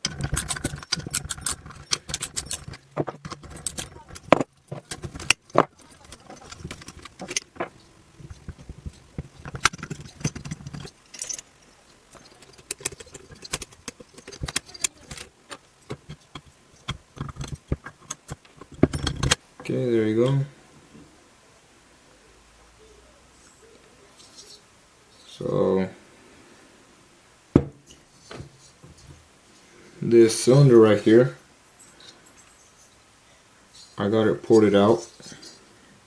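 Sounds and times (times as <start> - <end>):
metal hand tools clinking on engine: 0.0 - 7.8.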